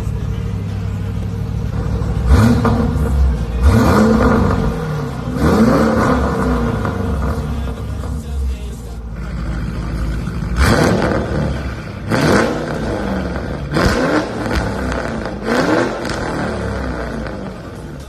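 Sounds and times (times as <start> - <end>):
car engine revving hard: 2.1 - 8.2, 9.3 - 17.9
exhaust cracks: 9.2 - 18.0.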